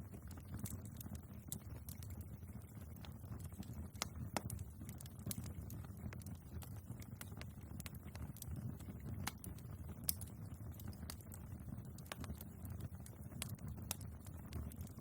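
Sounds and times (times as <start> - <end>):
fire crackles and pops: 0.0 - 15.0
low rumble of flames: 0.0 - 15.0.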